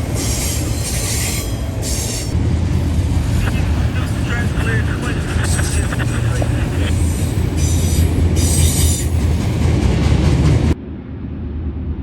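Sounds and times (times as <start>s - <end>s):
freight train wheel rumble: 0.0s - 12.0s.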